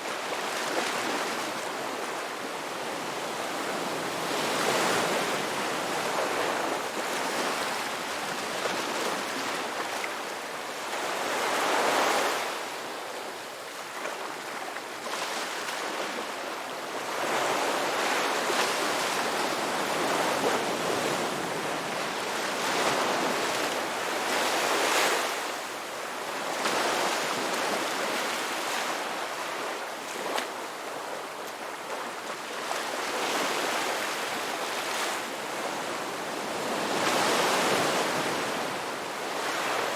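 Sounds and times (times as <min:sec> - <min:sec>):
ocean surf on a beach: 0:00.0 - 0:39.9.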